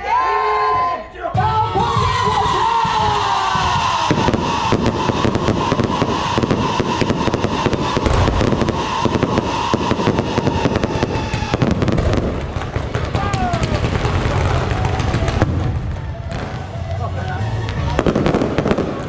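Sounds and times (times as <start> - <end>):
fireworks crackling and popping: 3.0 - 19.0
firework shells bursting: 4.0 - 16.7.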